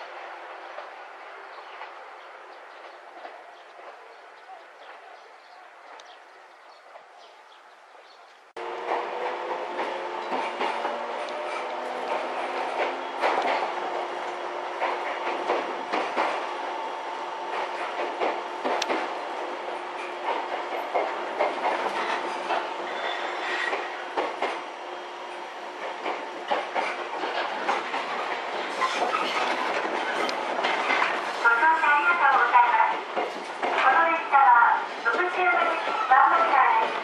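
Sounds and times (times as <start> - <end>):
wheels clacking over rail joints: 8.6 - 34.2
train traction motors droning: 8.6 - 37.0.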